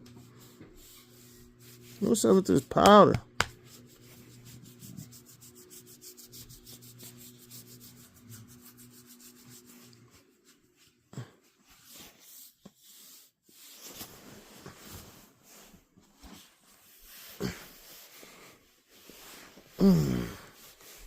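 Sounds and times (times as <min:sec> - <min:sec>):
low steady hum: 0:00.0 - 0:11.3
cloth rubbing on dog fur: 0:00.1 - 0:02.7, 0:03.4 - 0:19.7.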